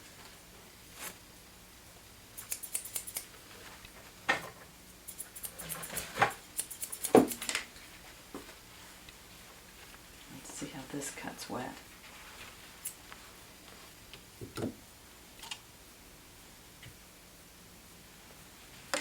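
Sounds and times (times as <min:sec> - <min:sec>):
shears snipping: 0:02.4 - 0:03.3, 0:05.1 - 0:07.6.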